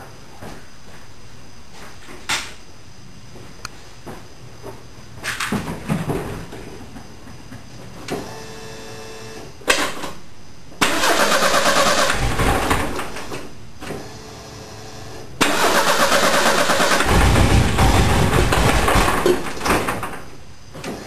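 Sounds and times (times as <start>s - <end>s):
engine cranking and starting: 10.8s - 13.4s, 15.4s - 20.1s.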